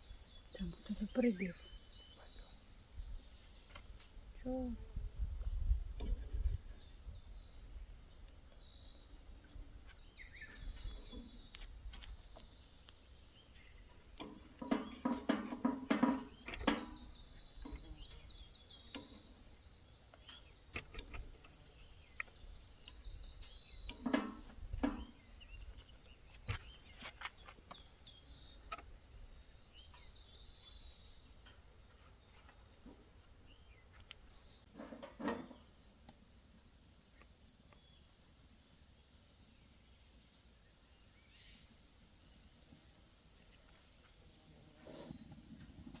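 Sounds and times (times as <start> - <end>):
small birds chirping: 0.0 - 46.0
sharp clicks and crackles: 8.2 - 31.6, 42.3 - 44.2, 45.1 - 46.0.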